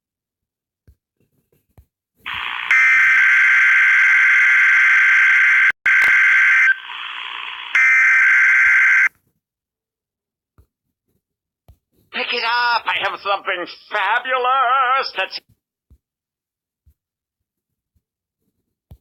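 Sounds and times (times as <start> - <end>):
harsh electronic buzzer: 2.3 - 9.1.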